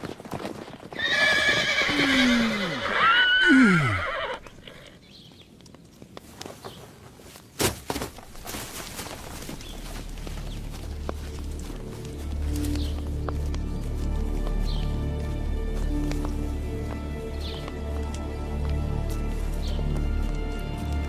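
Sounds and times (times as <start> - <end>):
horse whinnying: 1.0 - 5.0.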